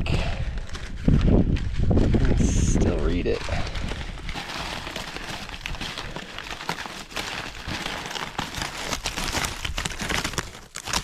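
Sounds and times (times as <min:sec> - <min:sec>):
newspaper rustling and crackling: 0:03.1 - 0:11.0.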